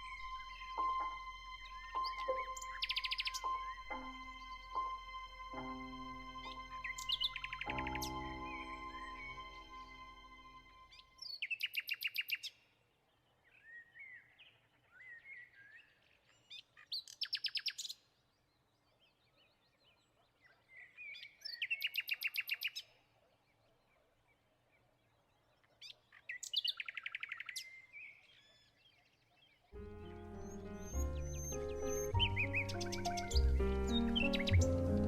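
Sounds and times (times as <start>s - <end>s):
bird twittering: 0.0s - 4.9s, 30.0s - 35.0s
songbird trilling: 30.0s - 35.0s.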